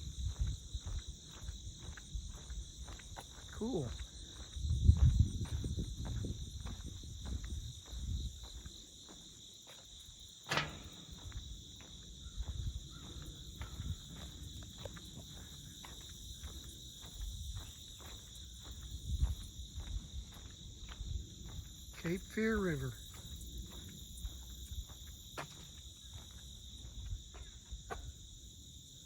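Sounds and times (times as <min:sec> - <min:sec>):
high insect chorus: 0:00.0 - 0:29.0.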